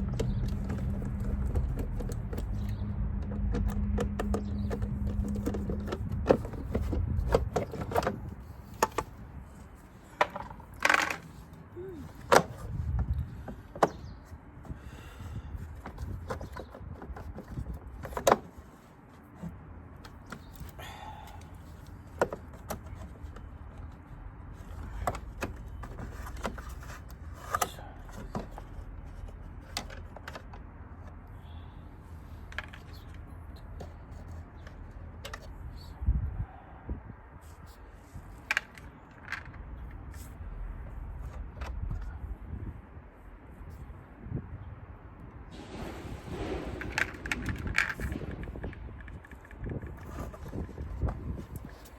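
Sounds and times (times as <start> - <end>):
hard objects clicking and knocking: 0.0 - 9.2, 10.1 - 14.2, 45.5 - 51.9
low steady rumble: 45.5 - 51.4.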